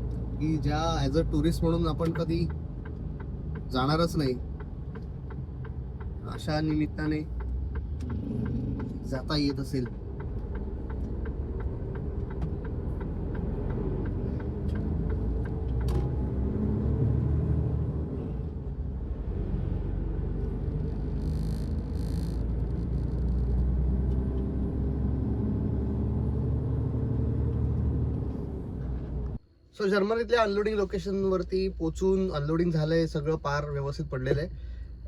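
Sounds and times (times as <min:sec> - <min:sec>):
truck engine and road rumble: 0:00.0 - 0:35.0
light ticks: 0:01.3 - 0:16.1.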